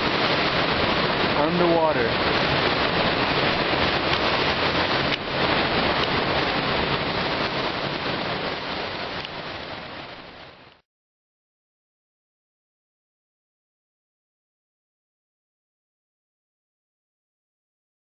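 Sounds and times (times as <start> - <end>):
floodwater rushing: 0.0 - 10.8.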